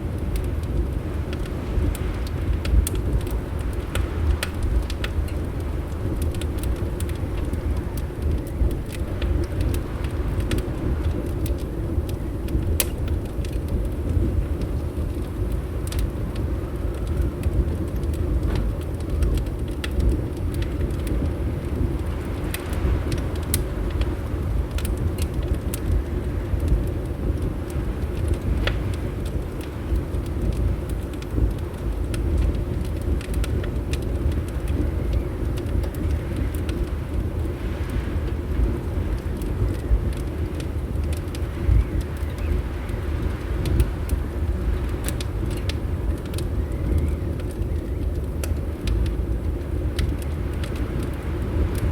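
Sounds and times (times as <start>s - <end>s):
low rumble of wind: 0.0s - 51.9s
wood fire crackling: 0.0s - 51.9s.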